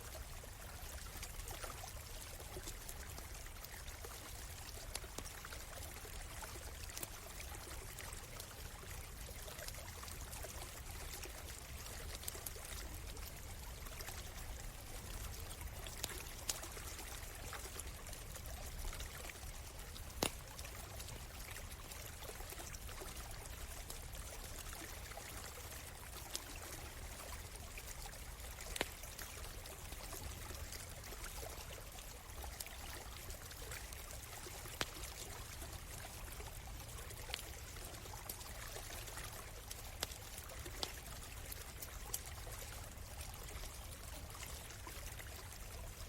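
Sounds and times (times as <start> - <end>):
stream flowing: 0.0 - 46.0
campfire pops and crackles: 10.4 - 21.7, 28.4 - 30.6, 33.4 - 36.2, 39.6 - 42.3.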